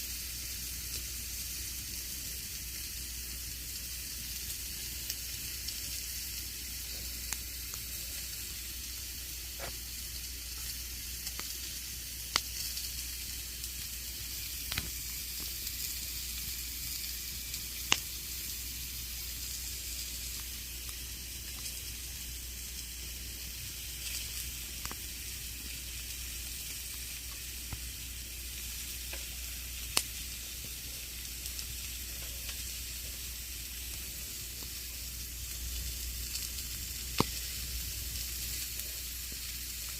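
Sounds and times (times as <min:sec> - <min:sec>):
burning wood crackling and popping: 0:00.0 - 0:39.9
campfire flames hissing: 0:00.0 - 0:39.9.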